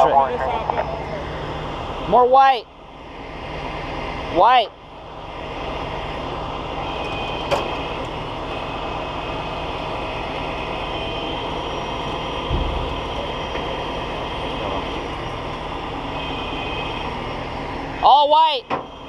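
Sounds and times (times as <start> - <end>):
diesel engine running: 0.0 - 19.0
low thump: 12.5 - 13.0.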